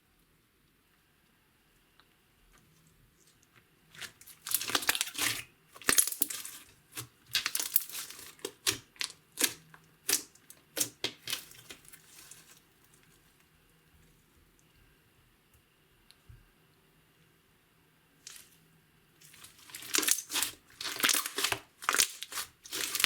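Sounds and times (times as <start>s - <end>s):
slime squishing by hand: 3.9s - 13.4s, 19.2s - 23.0s.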